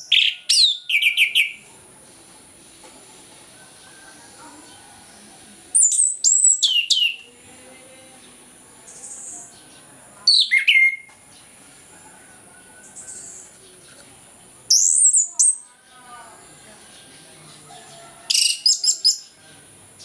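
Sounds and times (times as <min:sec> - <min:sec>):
thrush singing whistled phrases: 0:05.8 - 0:07.4, 0:10.3 - 0:11.1.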